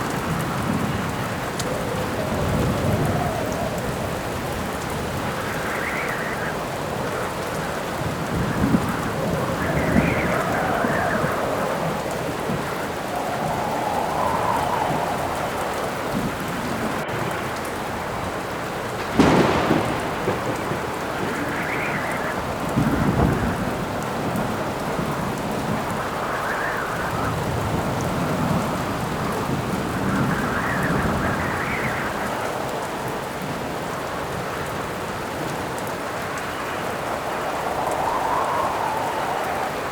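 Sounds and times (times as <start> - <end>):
low rumble of thunder: 0.0 - 34.8
heavy rain: 0.0 - 39.9
howling wind: 0.0 - 39.9
sharp thunderclap: 14.9 - 25.9.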